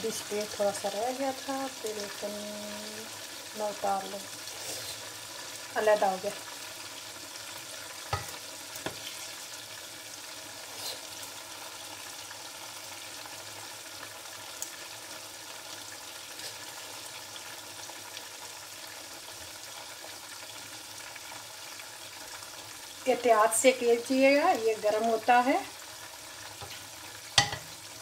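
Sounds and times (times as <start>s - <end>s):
food sizzling in a pot: 0.0s - 28.0s
wooden spoon knocking pot: 8.1s - 9.0s, 27.4s - 27.7s.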